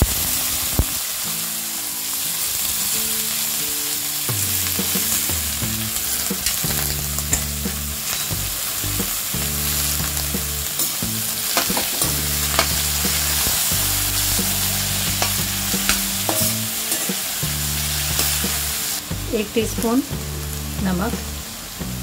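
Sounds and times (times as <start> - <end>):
background music: 0.0 - 22.0
vegetables sizzling in oil: 0.0 - 22.0
spoon clinking against pan: 15.2 - 17.2.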